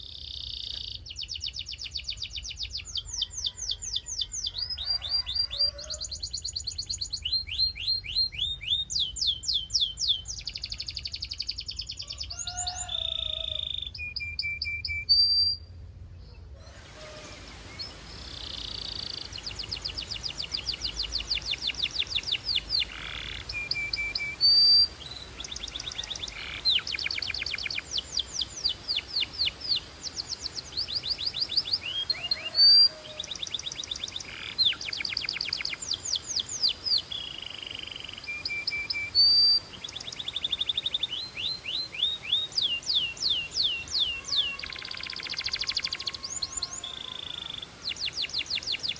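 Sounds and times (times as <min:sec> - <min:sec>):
canary singing fast trills: 0:00.0 - 0:15.7, 0:16.6 - 0:48.9
steady hiss: 0:16.6 - 0:48.9.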